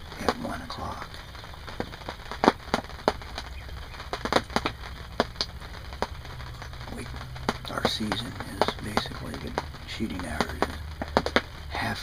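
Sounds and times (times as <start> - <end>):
low steady rumble: 0.0 - 12.0
raindrops tapping on fabric roof: 0.0 - 12.0.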